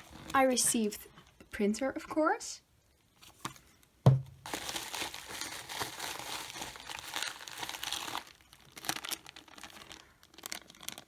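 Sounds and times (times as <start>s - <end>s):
packaging crinkling and rustling: 4.4s - 11.0s.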